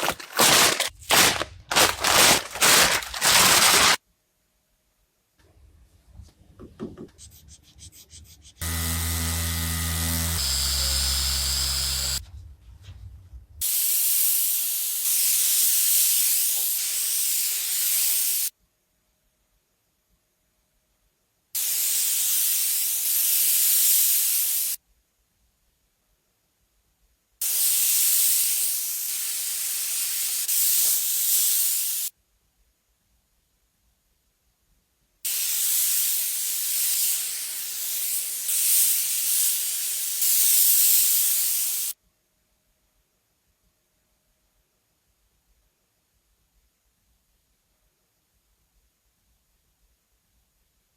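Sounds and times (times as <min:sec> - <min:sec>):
low droning machine: 0:08.6 - 0:12.2
spray gun hissing: 0:10.3 - 0:12.2, 0:13.6 - 0:18.5, 0:21.6 - 0:24.8, 0:27.5 - 0:32.1, 0:35.3 - 0:42.0.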